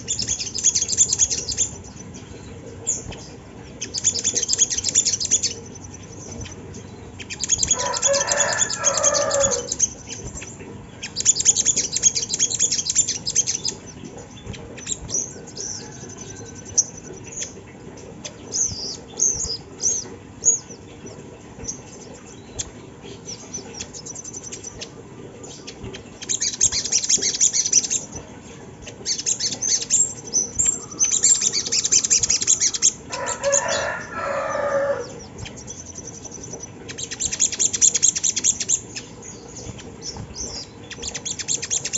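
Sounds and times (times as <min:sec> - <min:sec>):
bird chattering trills: 0:00.0 - 0:41.9
lower repeated bird call: 0:07.3 - 0:09.9.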